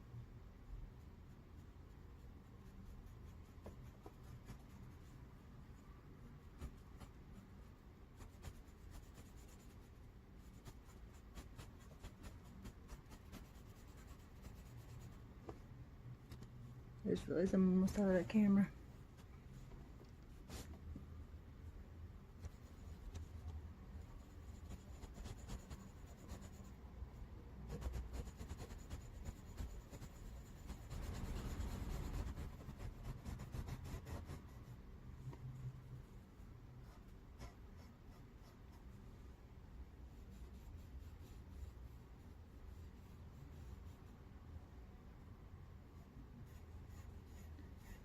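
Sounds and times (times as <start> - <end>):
cotton swab rubbing on paper: 1.0 - 15.2, 22.4 - 26.8, 27.6 - 34.8, 40.0 - 44.2.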